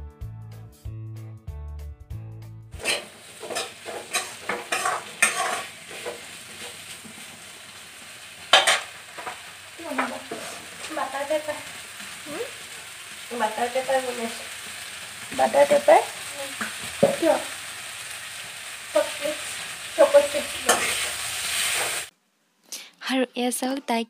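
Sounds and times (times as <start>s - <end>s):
background music: 0.0s - 3.0s
metal spatula scraping wok: 2.8s - 7.4s, 8.4s - 11.1s, 19.0s - 22.1s
food sizzling in a wok: 2.8s - 22.1s.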